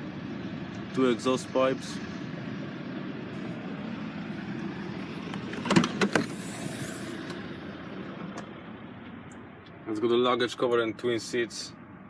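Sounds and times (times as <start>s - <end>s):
steady background rumble: 0.0s - 12.0s
tailgate latch clicks and knocks: 5.4s - 6.3s.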